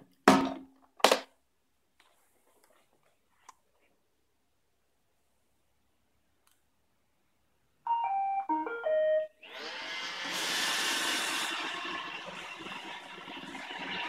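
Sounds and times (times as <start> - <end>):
vacuum motor and brushes running: 9.4 - 14.0.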